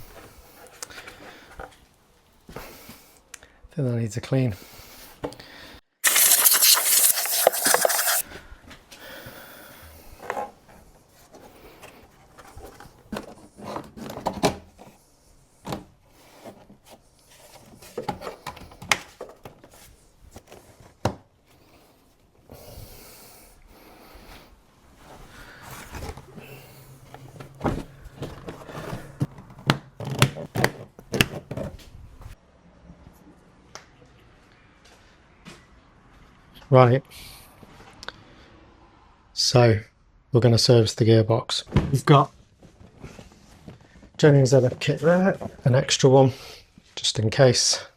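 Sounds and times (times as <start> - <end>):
loud hiss: 6.0 - 8.2.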